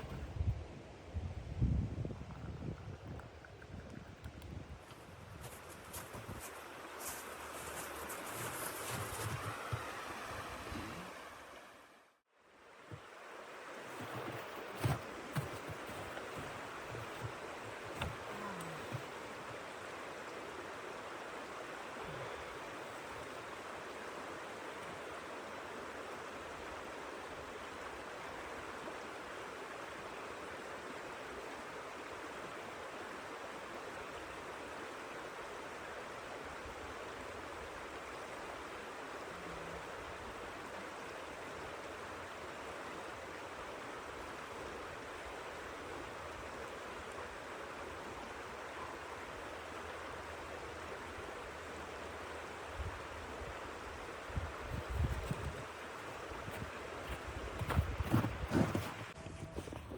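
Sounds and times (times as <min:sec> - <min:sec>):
blizzard wind rushing: 0:04.7 - 0:12.0.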